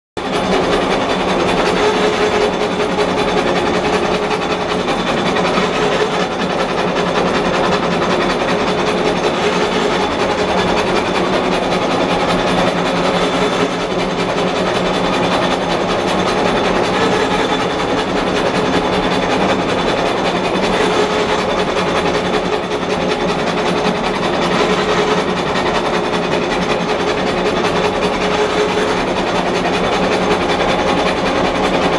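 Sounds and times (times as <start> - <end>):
faint machine hum: 0.2 - 10.1
machine clatter: 0.2 - 13.0.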